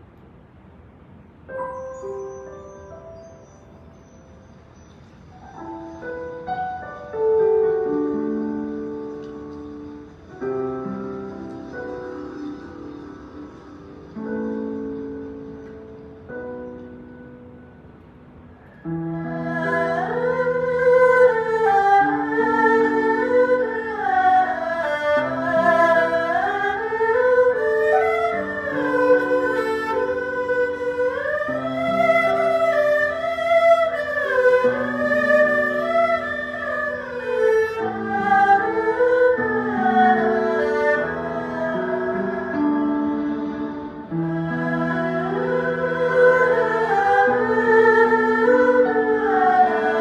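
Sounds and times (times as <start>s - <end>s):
bowed string ensemble melody: 1.4s - 50.0s.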